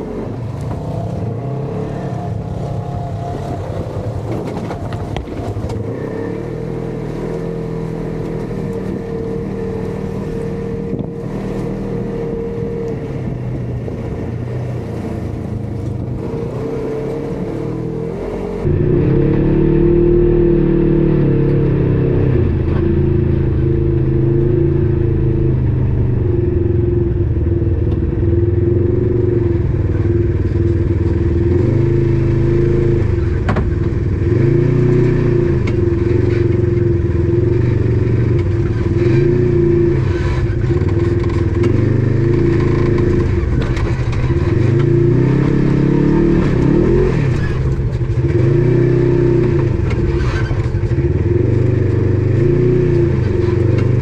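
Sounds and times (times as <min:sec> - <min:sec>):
off-road vehicle engine revving: 0:00.0 - 0:54.0
rattles and ticks from vehicle: 0:02.6 - 0:17.3, 0:27.2 - 0:54.0.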